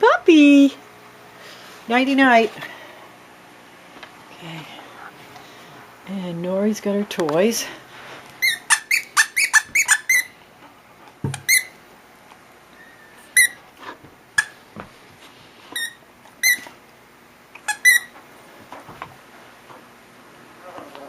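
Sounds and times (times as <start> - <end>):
dog's squeaky toy squeaking: 8.4 - 10.3, 11.3 - 11.8, 13.3 - 13.6, 14.4 - 14.6, 15.8 - 16.7, 17.6 - 18.1.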